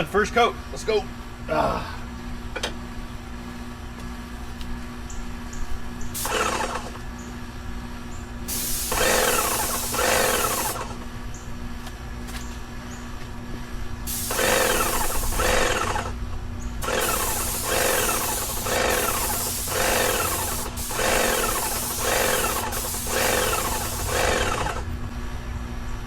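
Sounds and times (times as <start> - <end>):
paint sprayer hissing: 6.2 - 7.0, 8.5 - 11.1, 14.1 - 16.2, 16.8 - 24.9.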